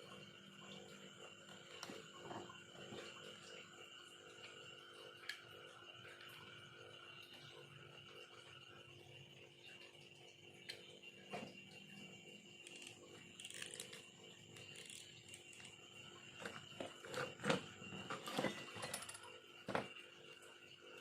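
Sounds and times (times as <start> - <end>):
knife carving bamboo: 12.7 - 14.0.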